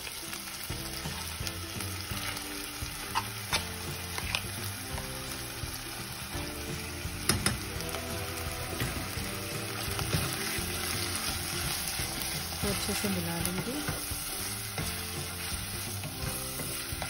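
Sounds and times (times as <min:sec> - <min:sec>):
meat sizzling in hot fat: 0:00.0 - 0:17.0.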